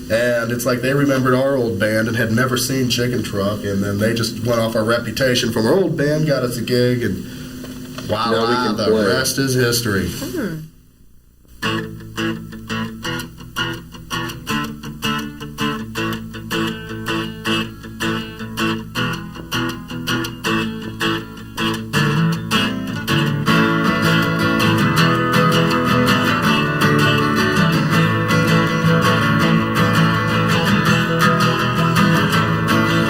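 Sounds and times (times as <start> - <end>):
acoustic guitar band playing: 0.0 - 10.6, 11.5 - 33.0
picked guitar notes: 11.6 - 33.0.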